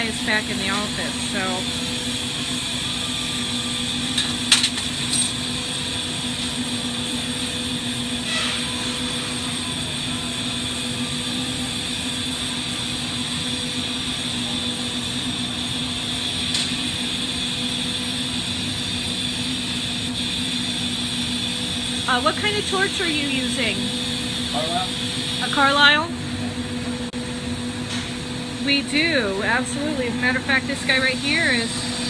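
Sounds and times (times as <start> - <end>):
torch hissing: 6.7 - 26.0, 29.2 - 32.0.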